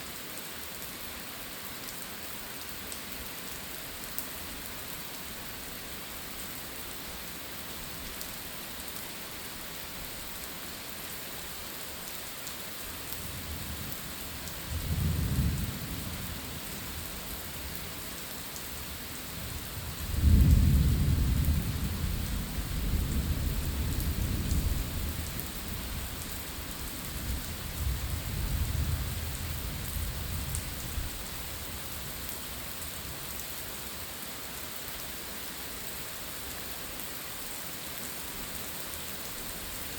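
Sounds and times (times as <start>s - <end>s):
steady rain falling: 0.0s - 39.9s
thunder rumbling: 20.1s - 25.3s.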